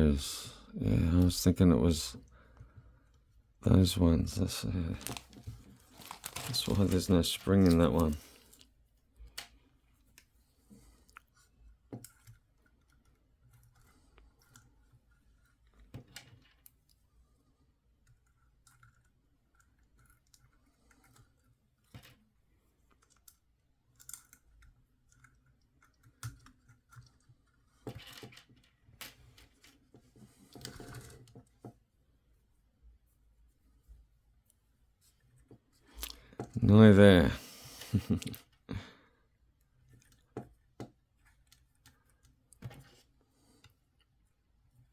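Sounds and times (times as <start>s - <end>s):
plastic toy parts clicking: 5.0s - 8.6s.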